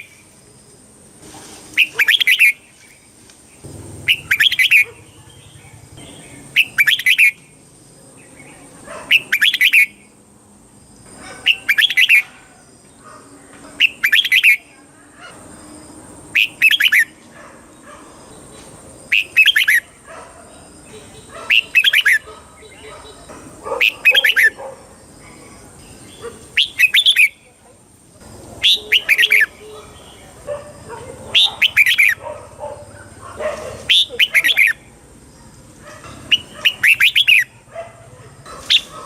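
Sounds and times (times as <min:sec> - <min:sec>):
bulbul singing: 0:01.8 - 0:10.2, 0:11.4 - 0:12.4, 0:13.7 - 0:14.8, 0:16.3 - 0:17.2, 0:18.2 - 0:27.6, 0:28.2 - 0:30.5, 0:31.3 - 0:35.0, 0:36.1 - 0:37.7.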